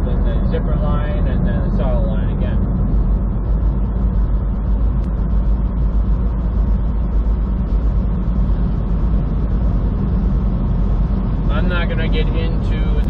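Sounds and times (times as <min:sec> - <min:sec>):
truck engine rumble: 0:00.0 - 0:13.0
tyre and road noise: 0:00.0 - 0:13.0.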